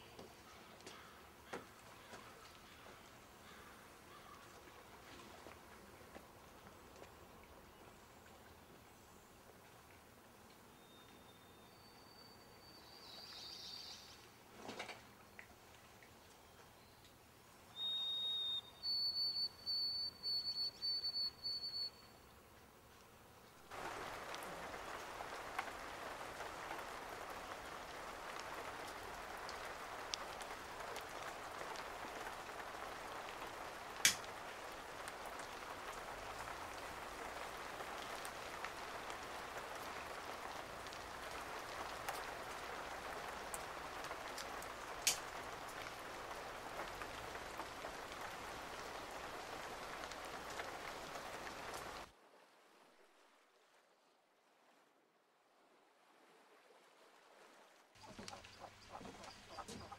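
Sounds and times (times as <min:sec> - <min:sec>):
rain pattering: 0:00.0 - 0:11.3, 0:12.8 - 0:18.1, 0:22.5 - 0:53.7, 0:58.0 - 0:59.9
water drips: 0:15.0 - 0:22.1, 0:23.6 - 0:52.1, 0:58.0 - 0:59.9.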